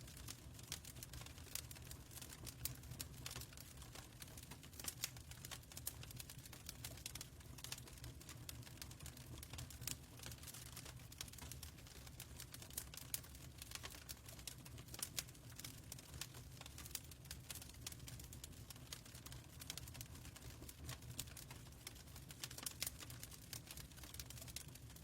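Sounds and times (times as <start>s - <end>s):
fireplace crackling: 0.1s - 25.0s.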